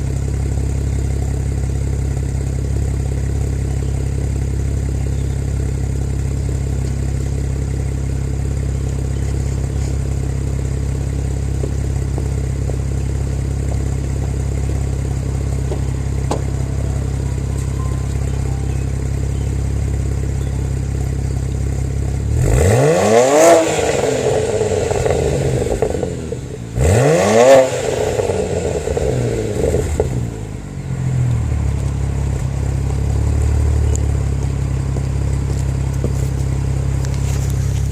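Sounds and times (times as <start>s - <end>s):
car engine idling: 0.0s - 37.9s
exhaust crackling: 0.0s - 37.9s
engine revving: 4.7s - 34.4s.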